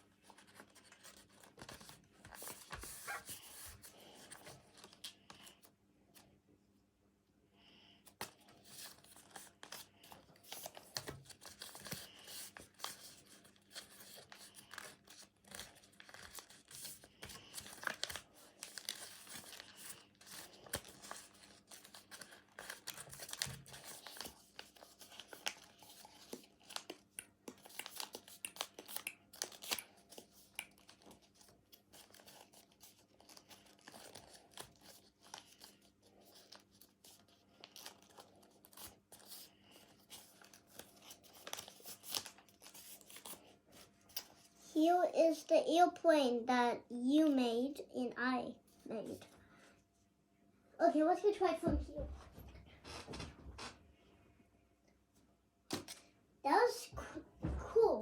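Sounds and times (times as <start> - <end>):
paper rustling and crinkling: 0.0 - 5.7, 8.2 - 44.6.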